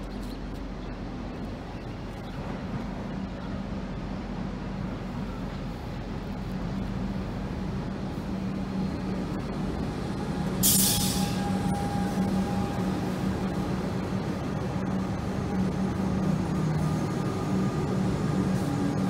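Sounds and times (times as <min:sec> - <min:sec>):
train electrical hum: 0:00.0 - 0:19.0
air hiss: 0:10.6 - 0:11.5.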